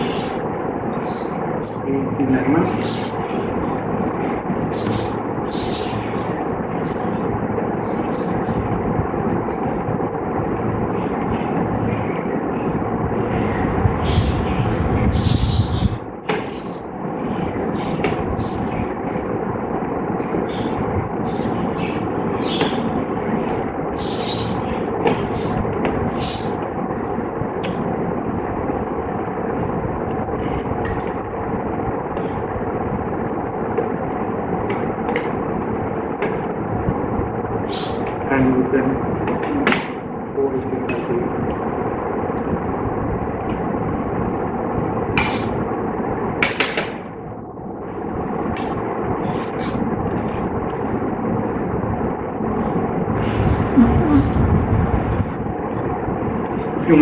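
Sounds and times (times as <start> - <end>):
faint hum: 0.0 - 0.4, 52.5 - 57.0.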